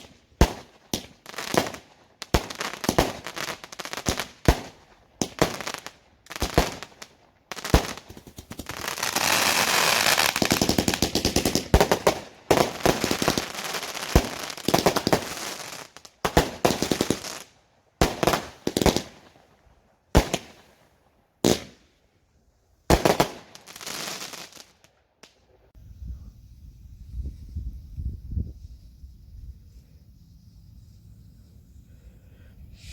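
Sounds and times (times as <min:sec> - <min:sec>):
fireworks bangs and crackling: 0:00.0 - 0:19.4, 0:20.1 - 0:20.8, 0:21.4 - 0:21.8, 0:22.9 - 0:25.4.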